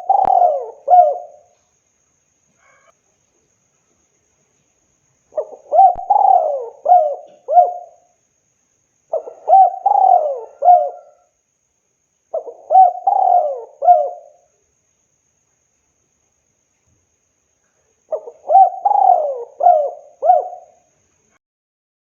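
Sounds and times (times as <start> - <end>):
dove cooing: 0.0 - 1.5, 5.3 - 8.1, 9.1 - 11.3, 12.3 - 14.5, 18.1 - 20.8.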